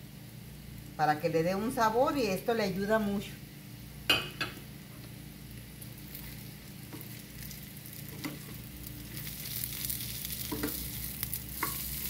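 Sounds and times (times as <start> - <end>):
food sizzling in oil: 0.0 - 12.0
spoon knocking against pan: 10.5 - 10.8.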